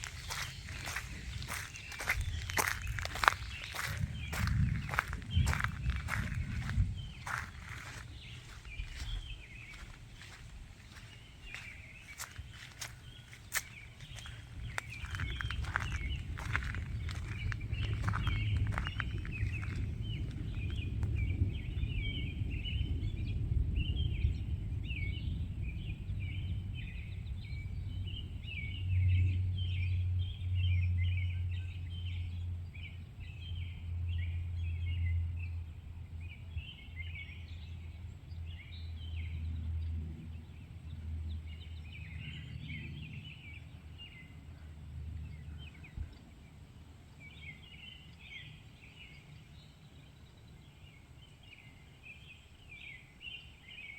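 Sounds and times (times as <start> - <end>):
low rumble: 0.0 - 42.9
small birds chirping: 0.0 - 53.9.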